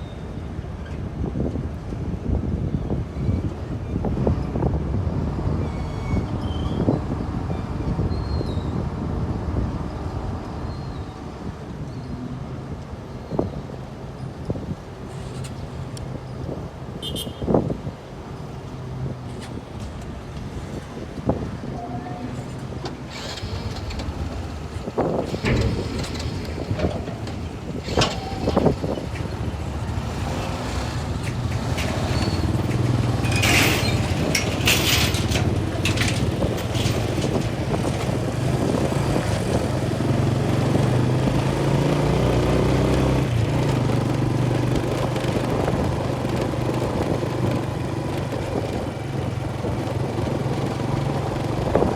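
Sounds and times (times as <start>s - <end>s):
engine running steadily: 18.7s - 42.0s.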